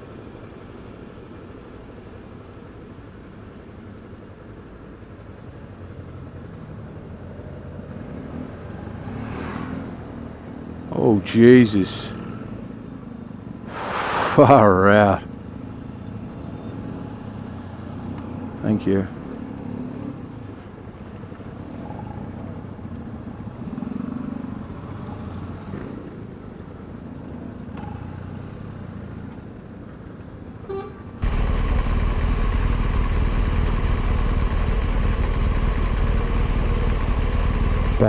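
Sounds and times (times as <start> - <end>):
road noise: 0.0 - 38.0
loud steady rush: 13.7 - 14.9
motorcycle engine: 31.2 - 38.0.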